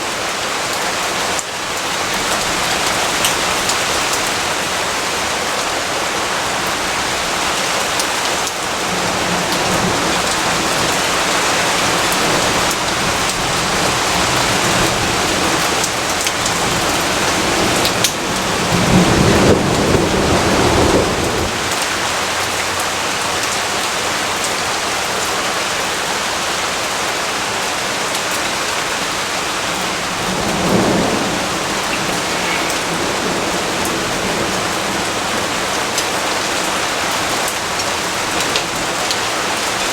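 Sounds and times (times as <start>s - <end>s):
heavy rain: 0.0s - 39.9s
thunder rumbling: 8.6s - 22.2s, 29.2s - 36.5s.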